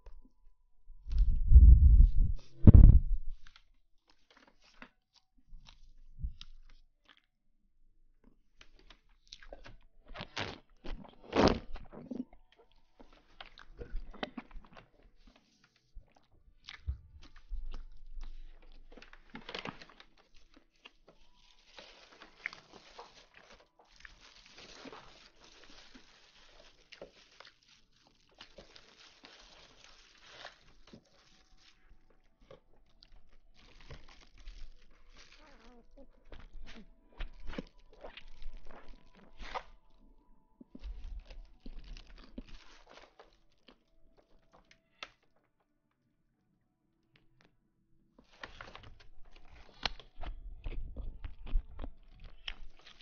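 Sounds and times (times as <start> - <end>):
close rustling and crunching: 12.9 - 40.0, 40.7 - 45.2, 48.2 - 53.0.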